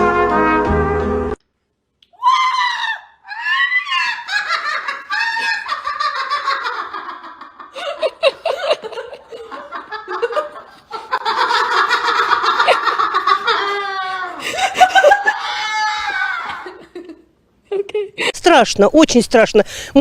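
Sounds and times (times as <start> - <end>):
high vocal cries: 2.1 - 6.0, 13.5 - 16.8
laughter: 4.0 - 18.3.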